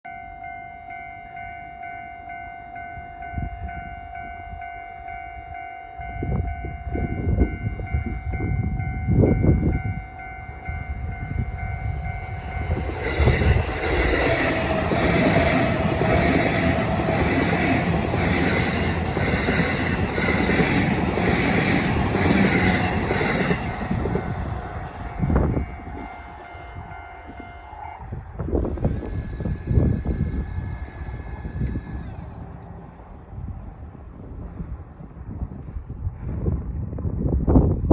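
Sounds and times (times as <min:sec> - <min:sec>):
level crossing alarm ringing: 0:00.1 - 0:28.2
train wheels clattering: 0:11.5 - 0:27.6.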